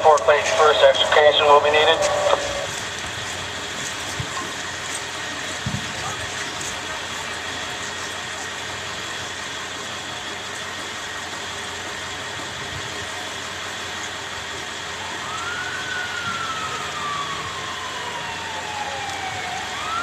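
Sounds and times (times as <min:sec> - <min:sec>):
emergency vehicle siren: 0:00.0 - 0:20.0
vehicle and outdoor noise: 0:00.0 - 0:20.0.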